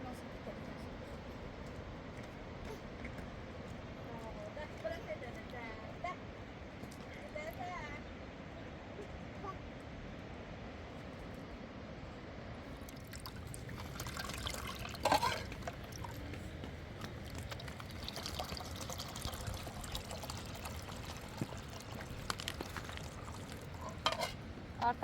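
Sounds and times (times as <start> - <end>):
liquid pouring and trickling: 12.8 - 24.5.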